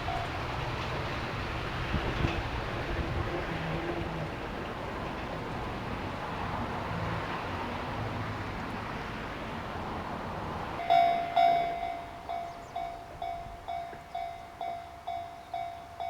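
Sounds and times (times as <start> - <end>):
train rushing and rumbling: 0.0 - 15.2.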